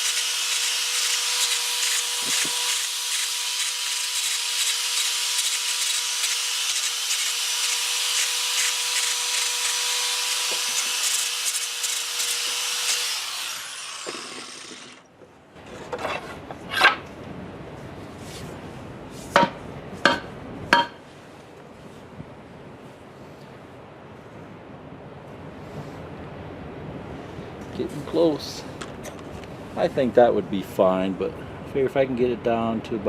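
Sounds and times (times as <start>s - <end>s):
electric sander on wood: 0.0s - 15.0s
sharp knocks: 19.4s - 21.0s.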